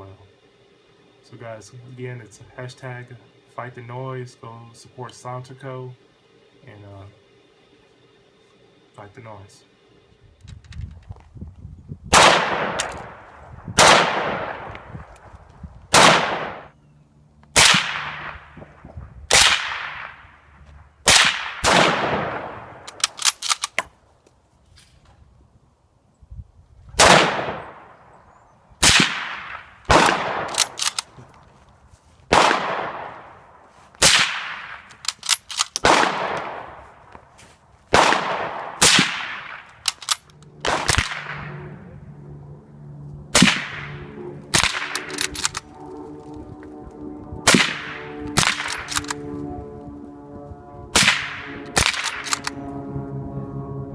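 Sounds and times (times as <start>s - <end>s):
suppressed gunshots: 12.1s - 15.0s, 15.9s - 16.7s, 17.5s - 20.4s, 21.0s - 23.9s, 27.0s - 28.0s, 28.8s - 31.2s, 32.3s - 33.4s, 34.0s - 36.8s, 37.9s - 41.8s, 43.3s - 45.7s, 47.4s - 49.3s, 50.9s - 52.7s.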